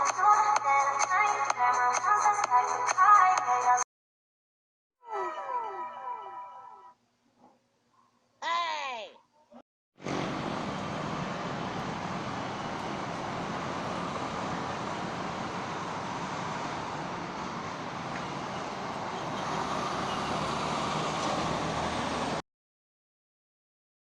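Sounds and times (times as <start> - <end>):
motor vehicle running: 10.0 - 22.4.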